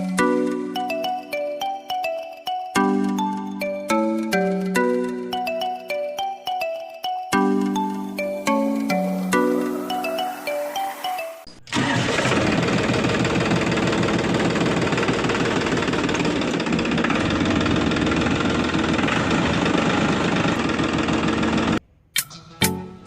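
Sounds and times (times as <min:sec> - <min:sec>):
tractor engine idling with knocking: 0:11.7 - 0:21.8.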